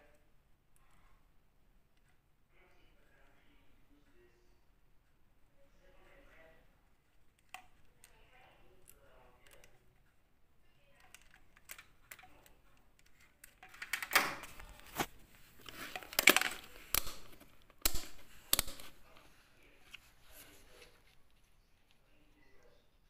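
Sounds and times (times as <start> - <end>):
clicks and clattering knocks: 13.4 - 19.0.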